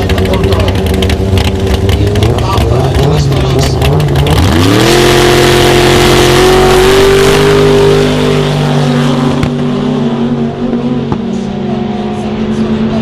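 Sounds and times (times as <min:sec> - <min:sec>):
drag racing car engine revving: 0:00.0 - 0:13.0.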